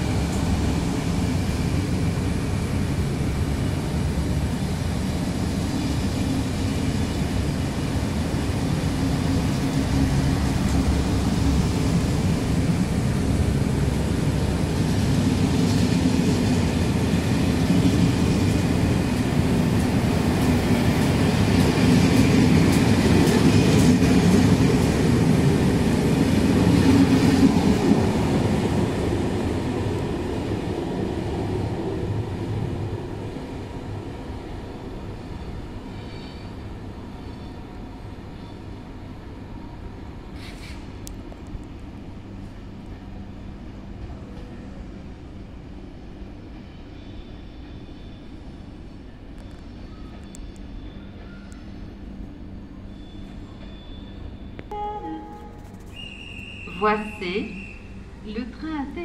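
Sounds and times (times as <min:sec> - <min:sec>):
train rumbling along rails: 0:00.0 - 0:59.0.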